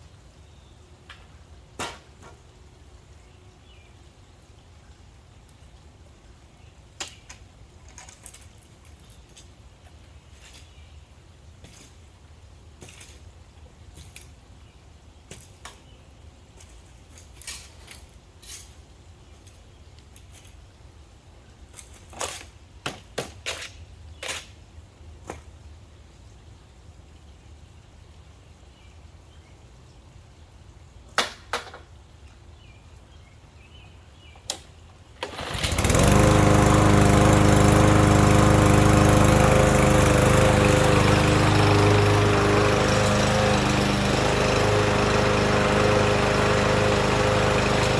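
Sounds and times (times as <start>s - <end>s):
lawn mower engine running: 35.2s - 47.9s.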